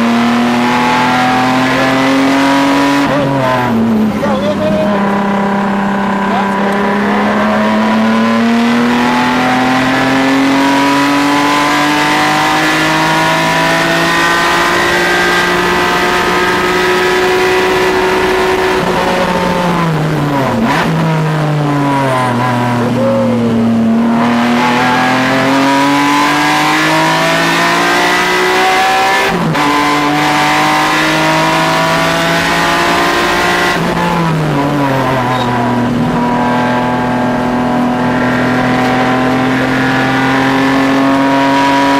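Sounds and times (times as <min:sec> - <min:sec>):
car engine accelerating and braking: 0:00.0 - 0:41.9.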